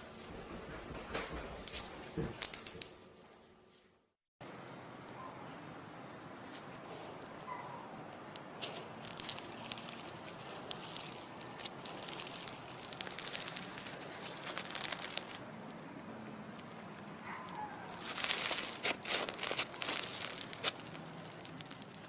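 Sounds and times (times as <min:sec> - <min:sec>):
hands squeezing crackling slime: 0:08.3 - 0:15.4, 0:17.9 - 0:22.0.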